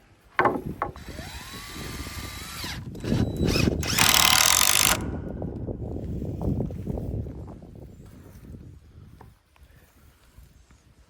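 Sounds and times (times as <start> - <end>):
knock: 0.4 - 1.0
power tool motor whining: 0.8 - 5.0
harsh high-pitched power tool work: 1.0 - 5.0.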